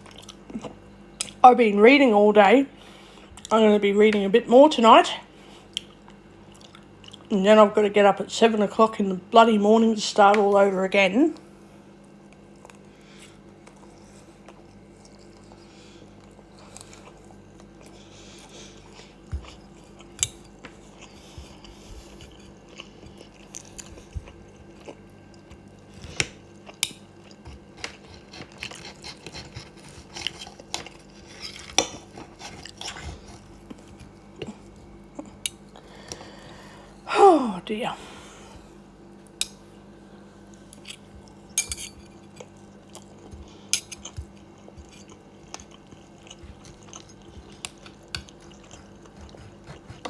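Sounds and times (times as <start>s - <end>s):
chewing: 0.0s - 1.4s, 5.7s - 7.3s, 12.0s - 36.7s, 40.5s - 50.0s
faint steady hum: 0.0s - 50.0s
cutlery scraping a plate: 40.7s - 42.5s, 43.7s - 44.2s.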